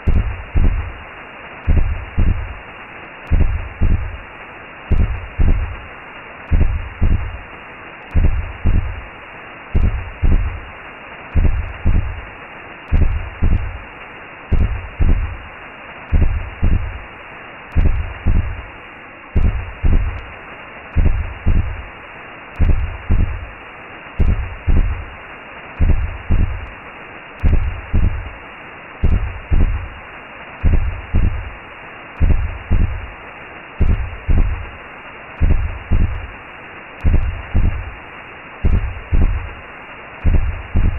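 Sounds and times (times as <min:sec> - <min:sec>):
muffled heartbeat thumps: 0:00.0 - 0:01.0, 0:01.6 - 0:02.6, 0:03.3 - 0:04.2, 0:04.9 - 0:05.9, 0:06.5 - 0:07.4, 0:08.1 - 0:09.1, 0:09.8 - 0:10.7, 0:11.3 - 0:12.3, 0:12.9 - 0:13.9, 0:14.5 - 0:15.5, 0:16.1 - 0:17.1, 0:17.7 - 0:18.7, 0:19.4 - 0:20.3, 0:20.9 - 0:21.9, 0:22.6 - 0:23.5, 0:24.2 - 0:25.1, 0:25.8 - 0:26.7, 0:27.4 - 0:28.4, 0:29.0 - 0:30.0, 0:30.6 - 0:31.6, 0:32.2 - 0:33.1, 0:33.8 - 0:34.7, 0:35.4 - 0:36.3, 0:37.0 - 0:38.0, 0:38.6 - 0:39.6, 0:40.2 - 0:40.9
steady whooshing hiss: 0:00.0 - 0:40.9.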